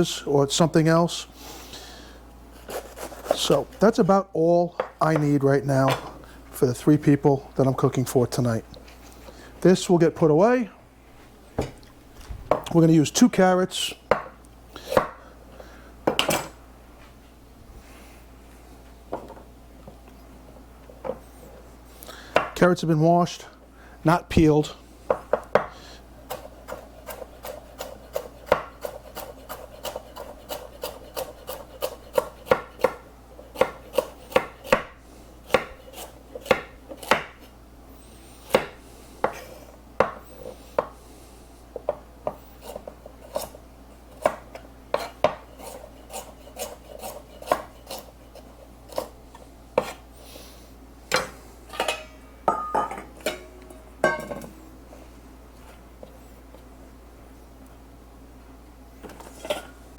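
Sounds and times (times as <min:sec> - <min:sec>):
knife chopping on cutting board: 0:14.9 - 0:15.2, 0:25.1 - 0:33.0, 0:33.6 - 0:37.4, 0:38.5 - 0:39.4, 0:40.0 - 0:40.2, 0:41.8 - 0:48.1, 0:49.8 - 0:50.0.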